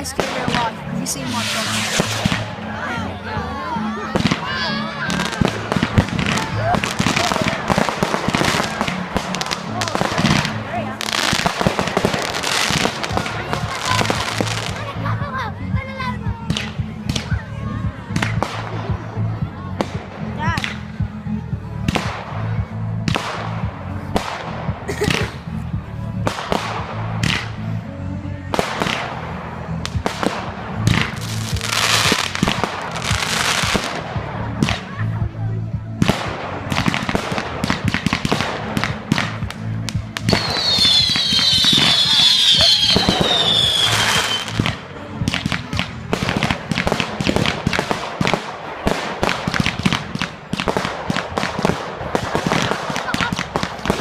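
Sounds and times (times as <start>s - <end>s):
fireworks bangs and crackles: 0.0s - 3.1s, 3.8s - 27.8s, 28.5s - 54.0s
whistling fireworks squealing: 40.3s - 44.6s.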